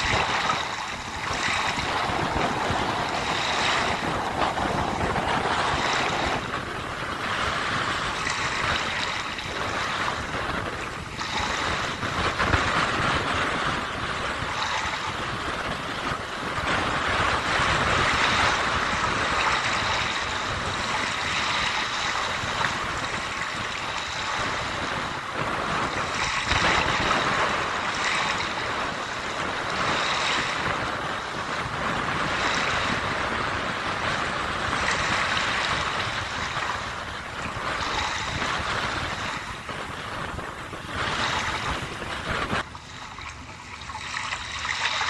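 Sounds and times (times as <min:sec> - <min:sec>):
sea waves washing onto shore: 0:00.0 - 0:45.0
wind: 0:00.0 - 0:45.0.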